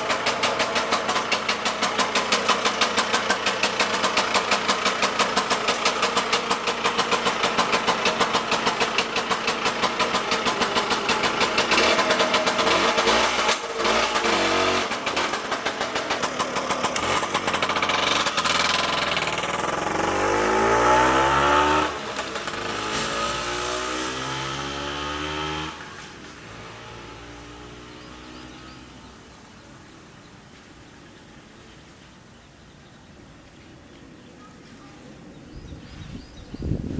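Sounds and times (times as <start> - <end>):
two-stroke scooter engine revving: 0.0 - 29.1.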